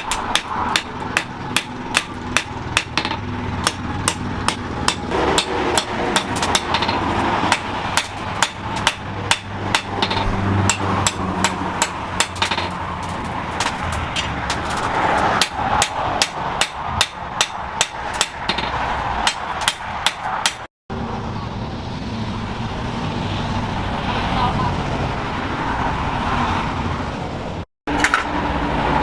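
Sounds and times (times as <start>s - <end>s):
hammer striking metal on anvil: 0.0s - 20.7s.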